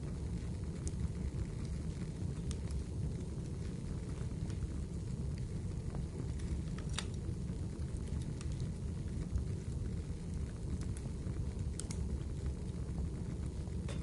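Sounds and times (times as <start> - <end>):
burning logs crackling and popping: 0.0 - 14.0
flames rumbling in fireplace: 0.0 - 14.0.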